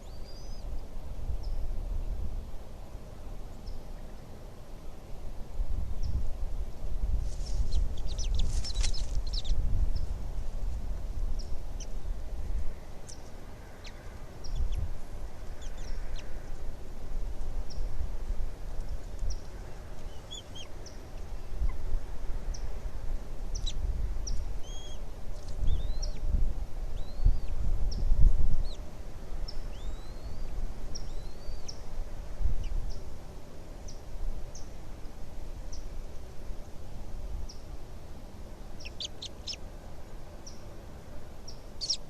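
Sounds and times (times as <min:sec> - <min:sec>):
high bird chirps: 0:07.7 - 0:09.6, 0:41.8 - 0:42.0.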